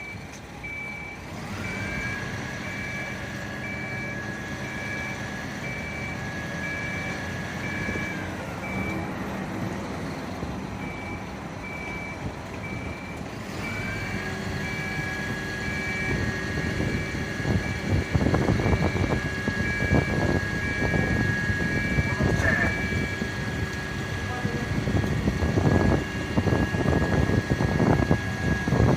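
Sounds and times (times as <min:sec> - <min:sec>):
engine running: 0:00.0 - 0:28.9
warning beeper: 0:10.8 - 0:23.5.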